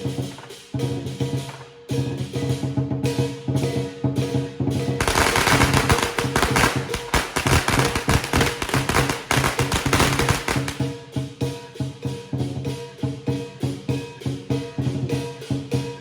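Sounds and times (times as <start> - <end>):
drum band percussion music: 0.0 - 16.0
firecrackers crackling: 0.2 - 0.7, 5.0 - 10.9.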